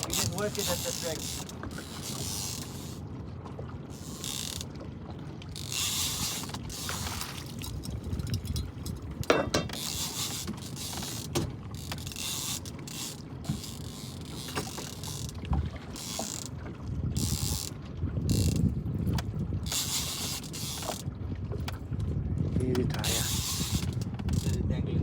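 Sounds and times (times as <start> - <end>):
fishing reel ratchet clicking: 0.0 - 3.0, 4.0 - 4.6, 5.6 - 16.5, 17.2 - 17.7, 18.3 - 18.6, 19.6 - 21.0, 23.0 - 24.6.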